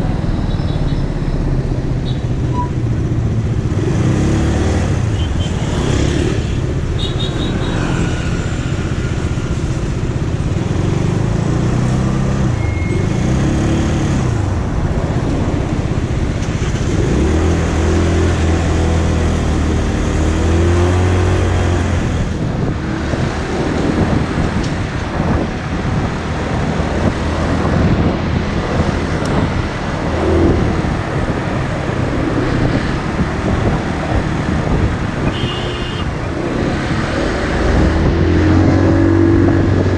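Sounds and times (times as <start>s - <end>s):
motorcycle engine revving: 3.0s - 39.9s
steady rushing noise: 6.5s - 11.8s, 13.8s - 35.4s.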